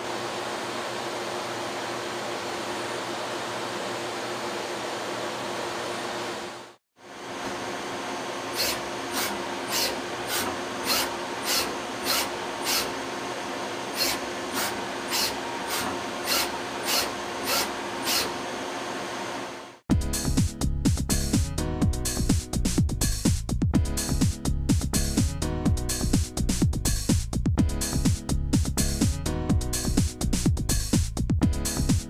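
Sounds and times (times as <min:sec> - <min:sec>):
lathe mechanical hum: 0:00.0 - 0:19.8.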